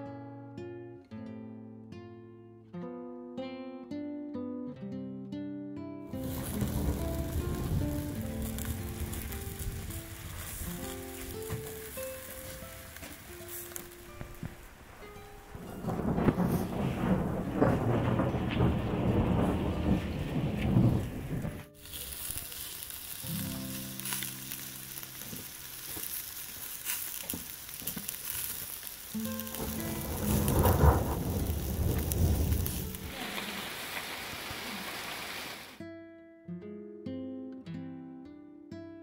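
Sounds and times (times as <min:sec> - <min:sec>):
heavy rain pouring: 0:06.1 - 0:35.8
thunder rumbling: 0:06.2 - 0:25.8, 0:27.2 - 0:35.7.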